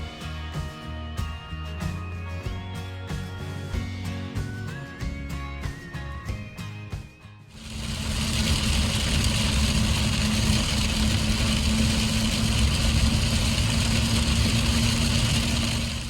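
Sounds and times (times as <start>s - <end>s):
engine running: 7.5s - 16.0s.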